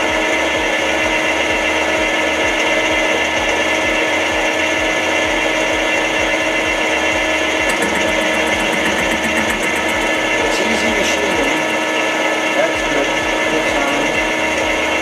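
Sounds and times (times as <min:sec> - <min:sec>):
metal lathe running: 0:00.0 - 0:15.0.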